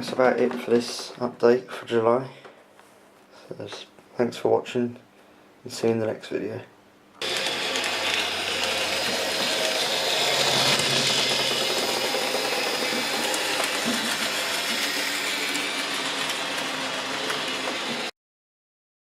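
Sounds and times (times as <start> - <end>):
model train motor whir: 7.2 - 18.1
wheels on rails: 7.2 - 18.1.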